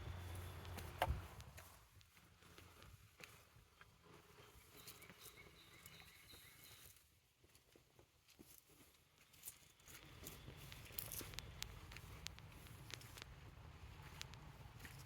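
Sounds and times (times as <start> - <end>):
soft ticks: 10.2 - 15.0.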